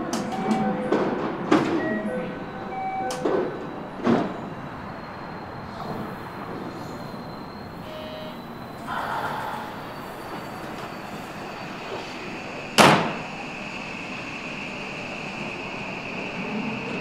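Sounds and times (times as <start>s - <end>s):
steady station background: 0.0s - 17.0s.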